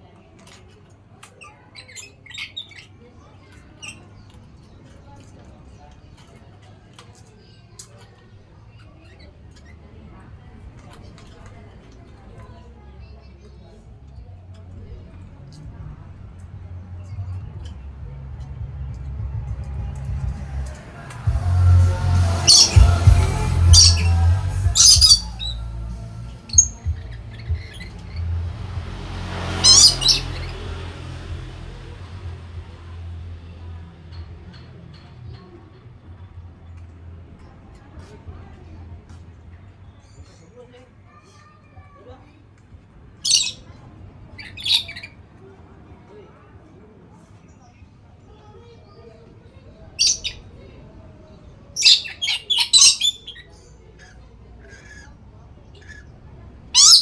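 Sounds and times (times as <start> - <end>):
low steady hum: 11.2 - 39.6
parrot chirps: 21.8 - 28.6, 29.5 - 32.3, 43.2 - 43.6, 44.4 - 45.2, 50.0 - 50.4, 51.8 - 55.1, 56.7 - 57.0
parrot squawking: 22.0 - 25.7, 26.4 - 28.3, 29.5 - 30.7, 44.4 - 45.1, 50.0 - 50.4, 51.8 - 53.6, 56.7 - 57.0.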